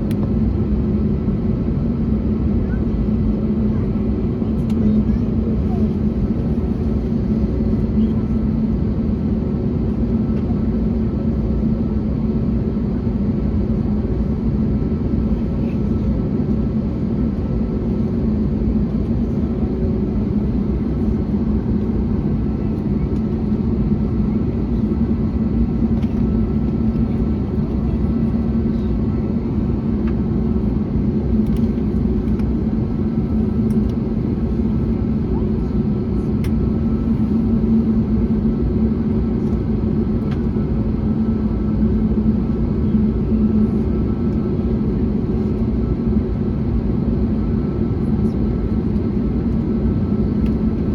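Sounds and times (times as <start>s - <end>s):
jet cabin engine drone: 0.0s - 50.9s
low steady hum: 15.3s - 44.7s.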